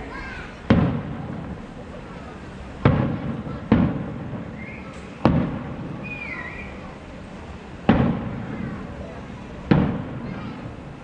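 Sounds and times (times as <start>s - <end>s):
firework bangs with echo: 0.6s - 1.9s, 2.8s - 6.8s, 7.8s - 10.9s.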